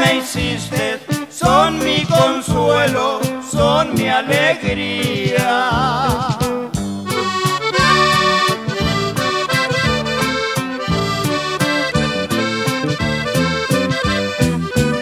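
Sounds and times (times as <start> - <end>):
person singing with vibrato: 0.0 - 6.7
rhythmic accompaniment: 0.0 - 15.0
accordion playing: 1.0 - 5.2, 6.8 - 15.0.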